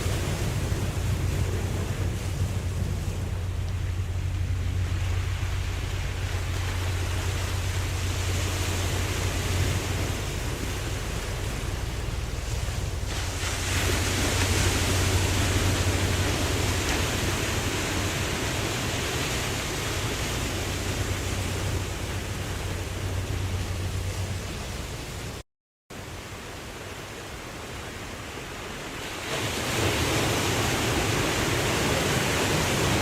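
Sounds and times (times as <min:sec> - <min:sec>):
constant low hum: 0:00.0 - 0:25.4
ocean waves washing: 0:00.0 - 0:33.0.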